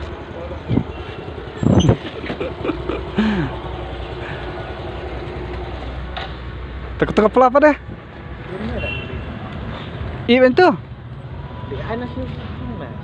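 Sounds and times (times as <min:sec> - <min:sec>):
motorcycle engine idling: 0:02.3 - 0:06.1.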